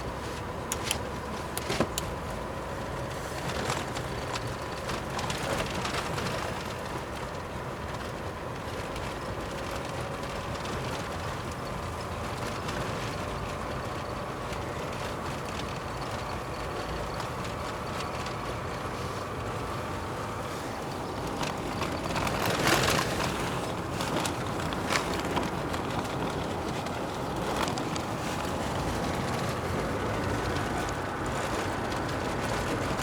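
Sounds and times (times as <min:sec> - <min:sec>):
car engine and tyre noise: 0:00.0 - 0:33.0.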